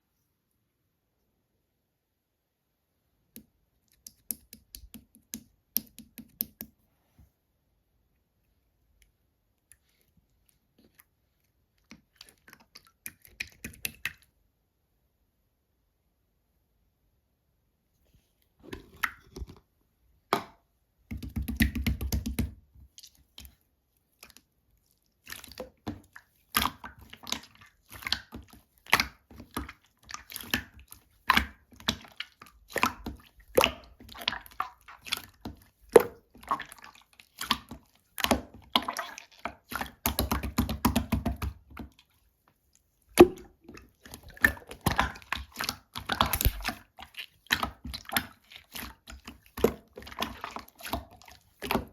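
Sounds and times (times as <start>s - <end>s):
jelly squished by hand: 8.9s - 14.4s, 18.4s - 51.9s.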